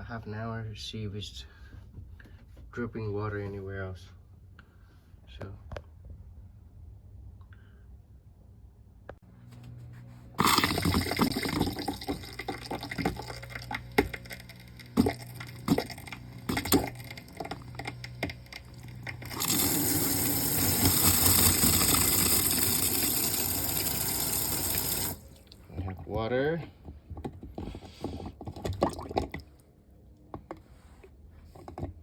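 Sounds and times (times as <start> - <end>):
faucet popping: 10.4 - 25.2
water running from faucet: 10.4 - 25.6.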